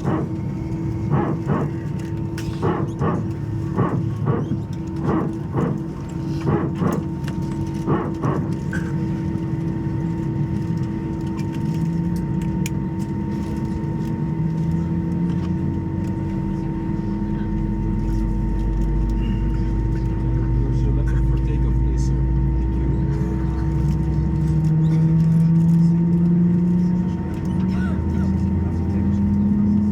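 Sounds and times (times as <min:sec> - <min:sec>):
hydraulic pump barking: 0:00.0 - 0:00.4, 0:01.0 - 0:07.1, 0:07.8 - 0:08.5
aircraft engines and cabin air drone: 0:00.0 - 0:29.9.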